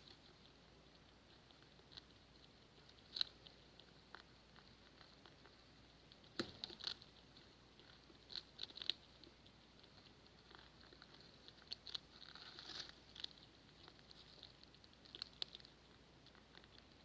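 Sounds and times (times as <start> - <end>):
faint background hiss: 0.0 - 17.0
rats making sharp clicks: 0.0 - 17.0.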